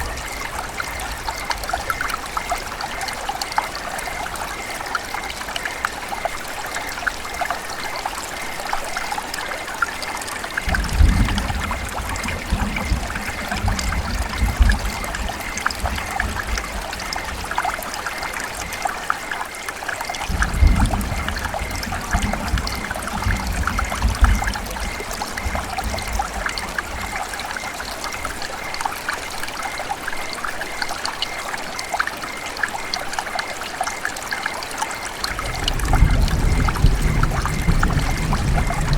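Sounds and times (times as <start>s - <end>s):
river water babbling: 0.0s - 38.9s.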